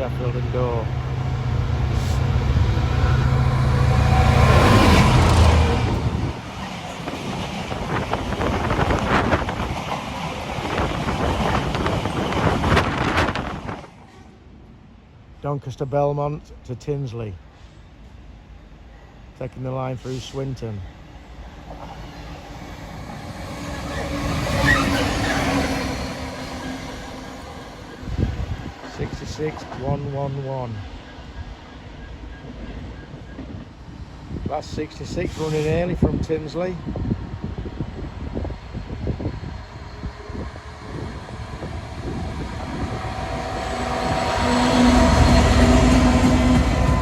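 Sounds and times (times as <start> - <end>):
train wheels rumbling on rails: 0.0 - 14.4, 19.5 - 47.0
diesel locomotive engine: 0.0 - 47.0
locomotive engine: 39.6 - 47.0.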